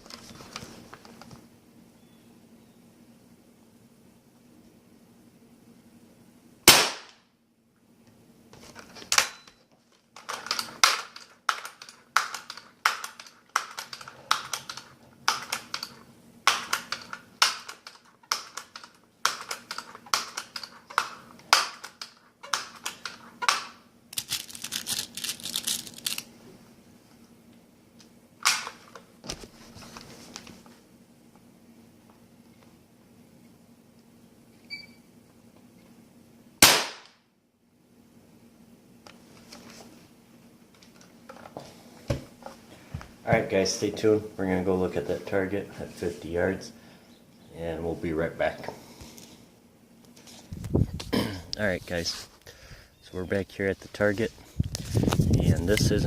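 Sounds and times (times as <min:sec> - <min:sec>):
air rifle shot crack: 0:06.6 - 0:07.2, 0:36.6 - 0:37.2.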